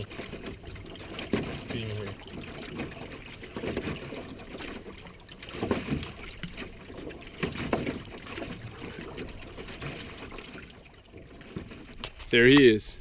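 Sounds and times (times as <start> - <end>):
canoe paddle splashing water: 0.0 - 13.0.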